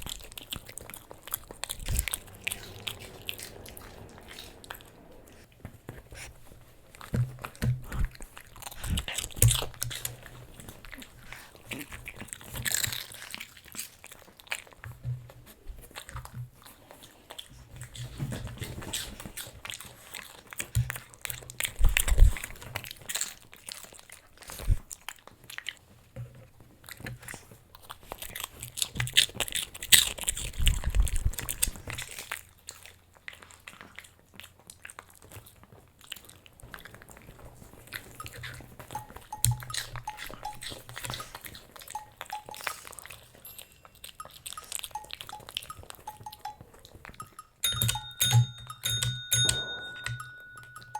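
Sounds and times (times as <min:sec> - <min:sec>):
dog crunching treats: 0:07.8 - 0:15.0, 0:26.9 - 0:47.8.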